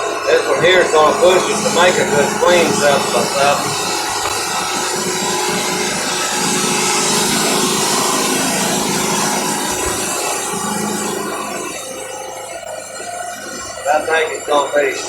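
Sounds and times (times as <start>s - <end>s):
sawmill motor hum: 0.0s - 15.0s.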